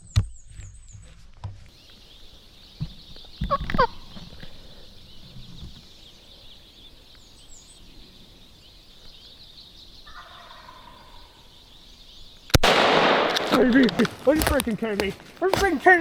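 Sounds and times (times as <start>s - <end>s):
turkey gobbling: 3.4s - 4.2s, 10.0s - 11.6s.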